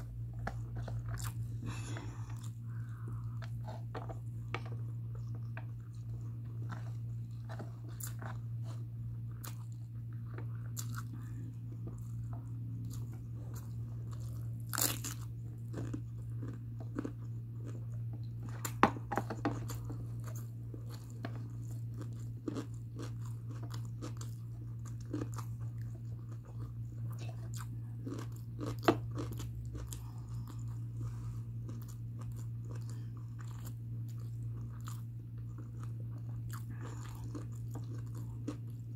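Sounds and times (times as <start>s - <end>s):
chewing and mouth sounds: 0.0s - 38.9s
steady low hum: 0.0s - 38.9s.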